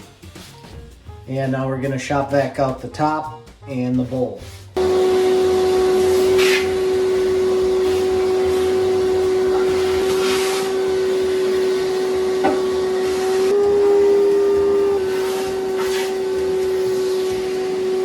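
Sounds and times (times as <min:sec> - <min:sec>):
shop vac whining: 0:04.7 - 0:18.0.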